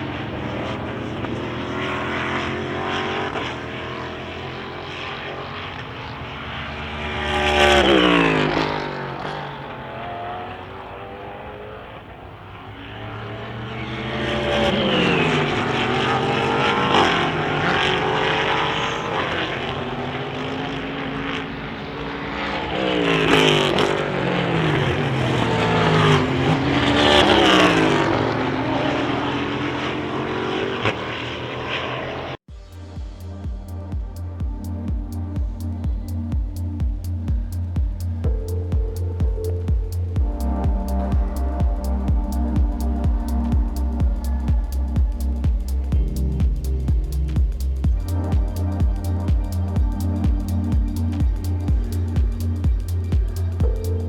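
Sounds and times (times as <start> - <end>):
racing cars passing at speed: 0.0 - 32.6
distant cars running: 0.0 - 54.0.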